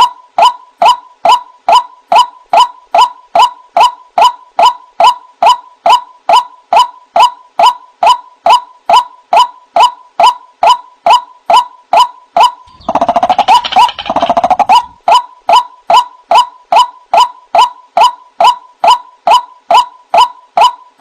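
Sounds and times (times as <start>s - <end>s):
waterhen calls: 12.4s - 16.5s
rapid lower-pitched bird notes: 12.4s - 20.8s.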